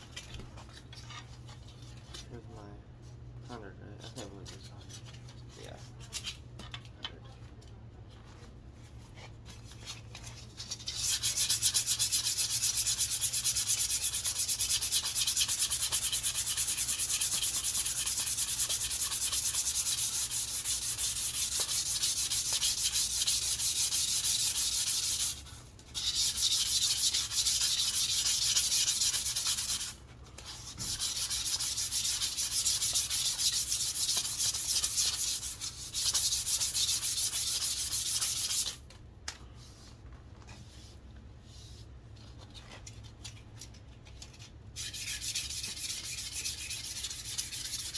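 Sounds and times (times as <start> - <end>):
sandpaper sanding wood: 10.6 - 38.8, 44.8 - 47.9.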